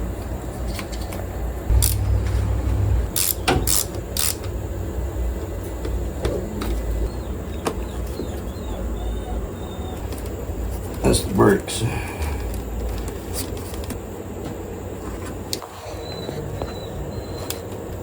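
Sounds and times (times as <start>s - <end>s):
steady low rumble: 1.7s - 7.5s.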